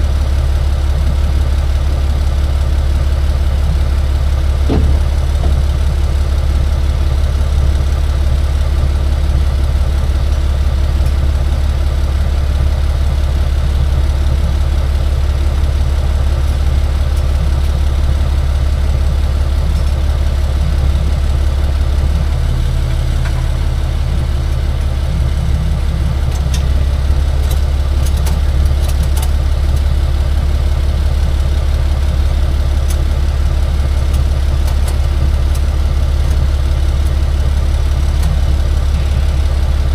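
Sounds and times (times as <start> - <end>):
vehicle engine droning: 0.0 - 39.9
hum: 3.7 - 31.2.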